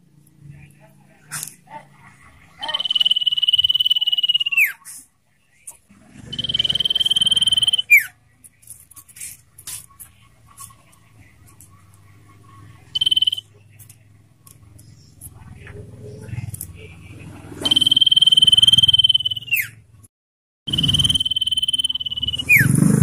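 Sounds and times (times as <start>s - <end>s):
bird trilled whistles: 2.6s - 4.8s, 6.3s - 8.1s, 13.0s - 13.4s, 17.6s - 19.8s, 20.7s - 22.8s
faint bird chirps: 2.6s - 5.0s, 12.6s - 13.9s.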